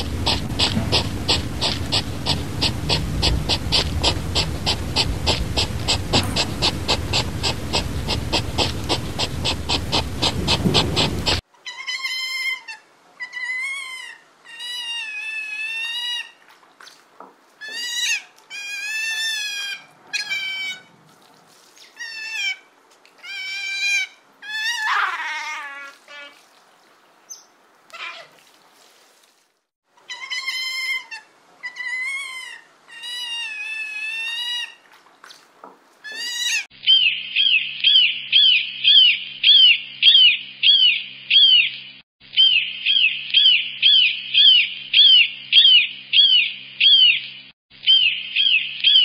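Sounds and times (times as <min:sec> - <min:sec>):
even pulsing sound: 0:00.0 - 0:11.4
low rumble: 0:00.0 - 0:11.4
sea otters squealing: 0:00.0 - 0:16.4, 0:17.6 - 0:20.9, 0:21.9 - 0:26.4, 0:30.1 - 0:34.8, 0:36.0 - 0:36.7.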